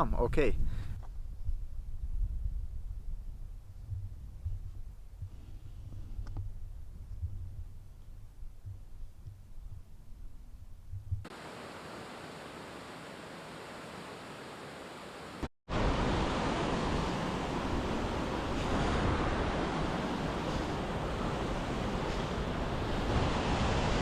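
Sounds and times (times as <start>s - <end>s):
rushing meltwater: 11.3s - 24.0s.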